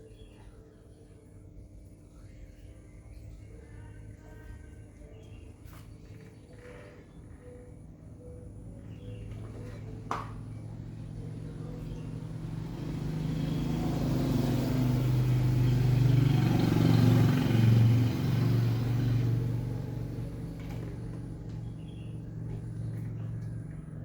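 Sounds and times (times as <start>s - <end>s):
vehicle engine passing by: 9.2s - 24.0s.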